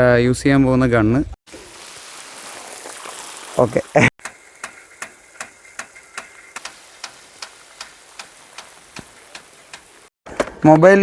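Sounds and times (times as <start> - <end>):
sprinkler arm clicking: 4.2 - 10.1.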